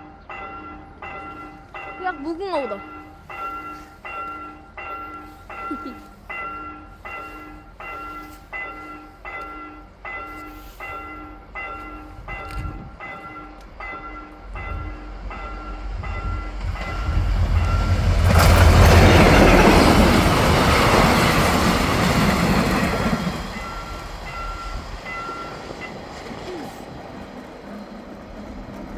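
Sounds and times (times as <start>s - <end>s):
train rushing past: 10.0s - 28.9s.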